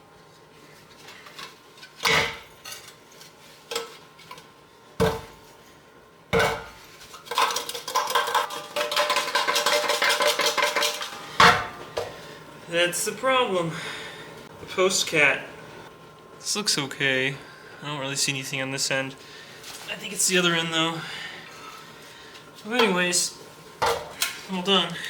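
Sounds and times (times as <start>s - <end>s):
metallic rattle of loose pieces: 7.1s - 11.2s.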